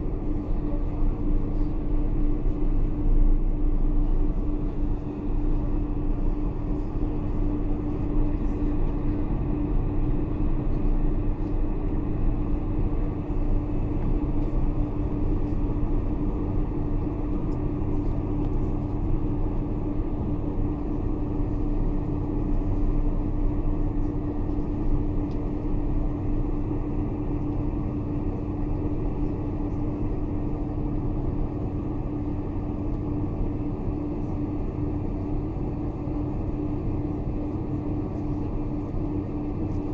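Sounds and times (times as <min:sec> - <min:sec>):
aircraft cabin engine rumble: 0:00.0 - 0:39.9
constant hum: 0:00.0 - 0:39.9.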